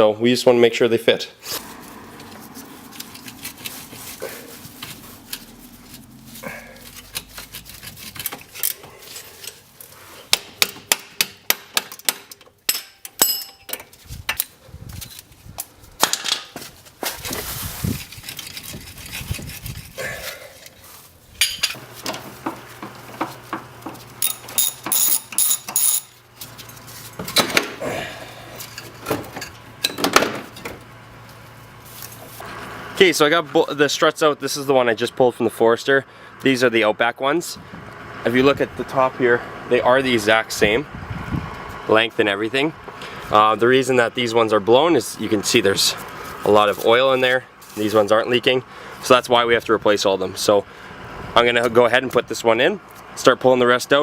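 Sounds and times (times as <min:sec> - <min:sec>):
hand tools clanking on metal: 0:10.3 - 0:14.5, 0:21.4 - 0:30.7.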